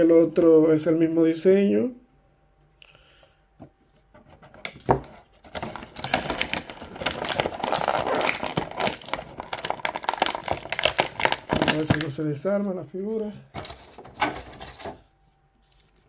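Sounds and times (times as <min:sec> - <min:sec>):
plastic packaging clicks: 0:04.7 - 0:12.7
plastic packaging crinkling: 0:04.9 - 0:16.0.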